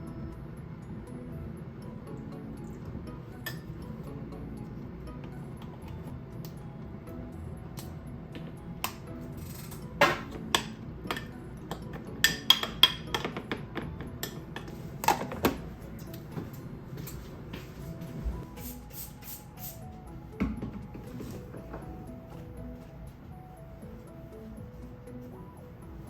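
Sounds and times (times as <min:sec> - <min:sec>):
quiet background music: 0:00.0 - 0:26.0
dishes and utensils clinking: 0:03.4 - 0:03.8, 0:08.4 - 0:17.3.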